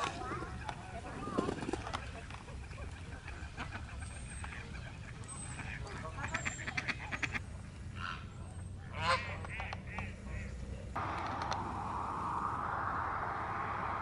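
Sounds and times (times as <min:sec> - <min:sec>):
steady noise: 0:11.0 - 0:14.0.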